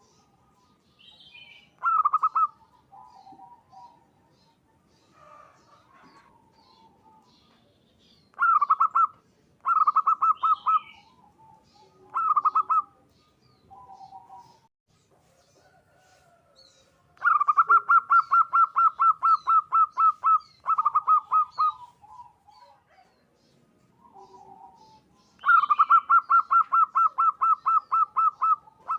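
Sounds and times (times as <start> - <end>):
faint high bird chirps: 0.0 - 28.9
dove rapid staccato cooing: 1.8 - 4.5, 8.4 - 13.1, 17.2 - 23.2, 24.0 - 28.9.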